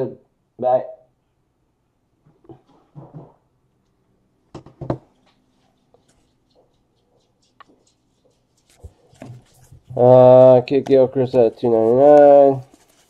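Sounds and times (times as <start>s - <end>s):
cards rustling: 5.7s - 13.0s.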